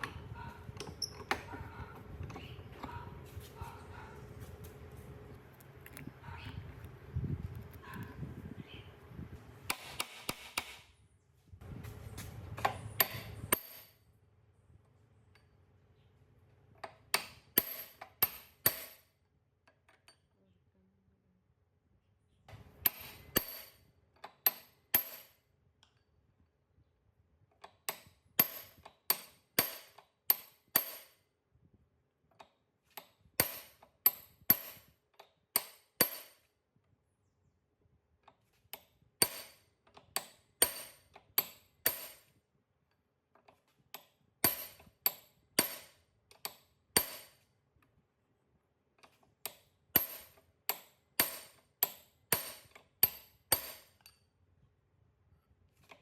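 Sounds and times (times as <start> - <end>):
hammer striking metal: 13.0 - 14.0, 35.6 - 36.4, 44.4 - 45.9, 47.0 - 47.4, 50.0 - 53.9.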